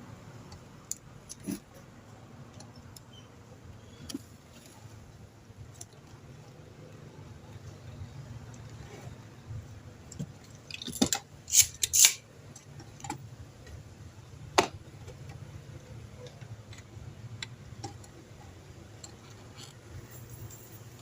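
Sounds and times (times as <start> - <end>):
clicks and snaps of tools: 10.7 - 13.2.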